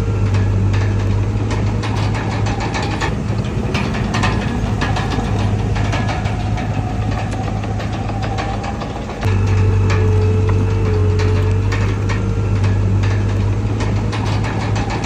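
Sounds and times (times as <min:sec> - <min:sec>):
bulldozer diesel engine running: 0:00.0 - 0:15.0
rapid clatter of clicks and knocks: 0:00.0 - 0:15.0.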